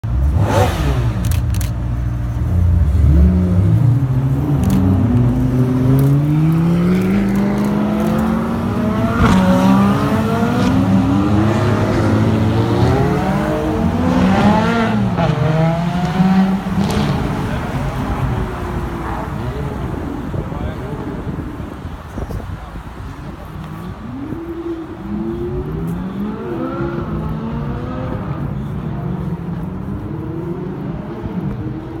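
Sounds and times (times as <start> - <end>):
car engine revving: 0.1 - 20.4.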